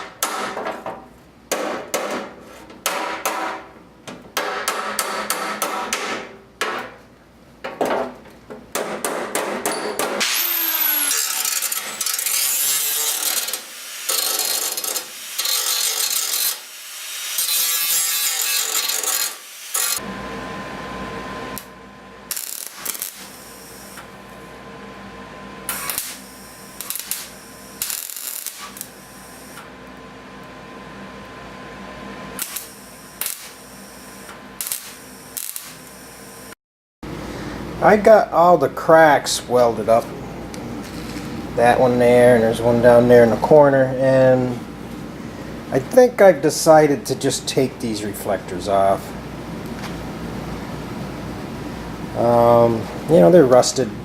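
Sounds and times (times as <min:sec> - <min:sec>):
power tool running: 0:10.2 - 0:24.3, 0:25.6 - 0:29.7, 0:32.3 - 0:36.6.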